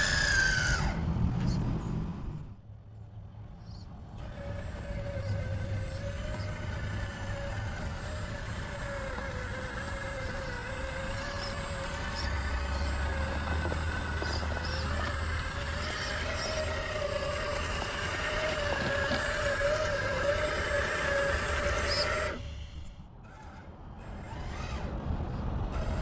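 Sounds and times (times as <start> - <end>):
electric motor whining: 0.0 - 2.5, 4.2 - 26.0
thin high whine: 3.6 - 23.0.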